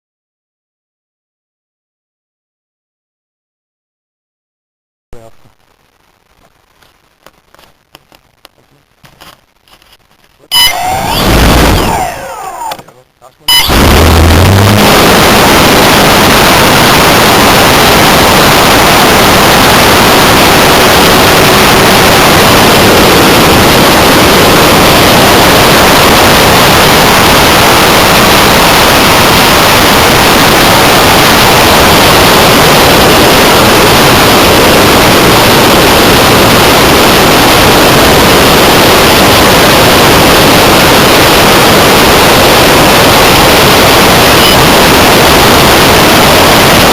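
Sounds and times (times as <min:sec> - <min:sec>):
distorted rush of air: 0:05.2 - 0:46.9
electric motor noise: 0:13.6 - 0:34.7.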